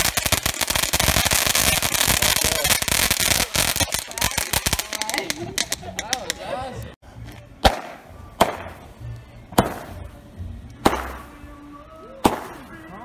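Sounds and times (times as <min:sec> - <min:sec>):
firework launch bangs with hiss: 0:00.0 - 0:05.7, 0:07.6 - 0:08.8, 0:09.5 - 0:10.0, 0:10.8 - 0:11.3, 0:12.2 - 0:12.7.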